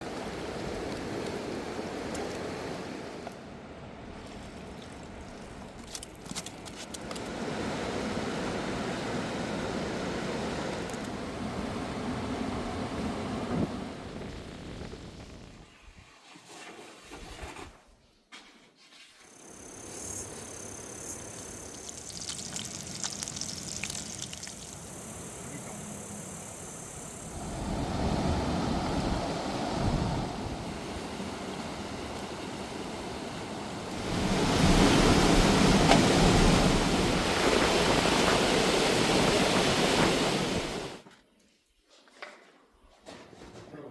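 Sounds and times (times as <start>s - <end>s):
river water rushing: 27.3s - 41.0s.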